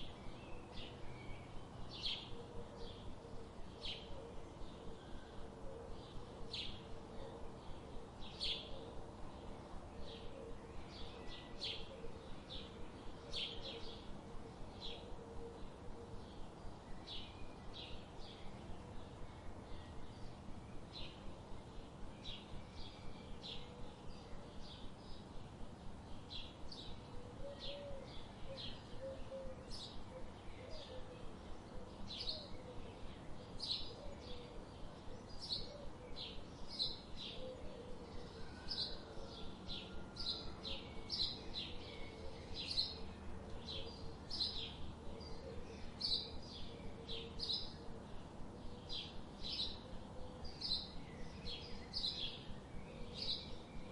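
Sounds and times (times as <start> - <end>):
faint low background noise: 0.0 - 53.9
small birds chirping: 0.0 - 53.9.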